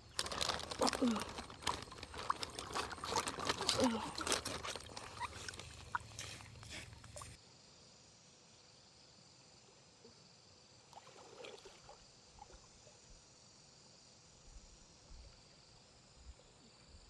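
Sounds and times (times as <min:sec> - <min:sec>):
insects chirring: 0:00.0 - 0:17.0
rustling and small knocks: 0:00.1 - 0:07.4.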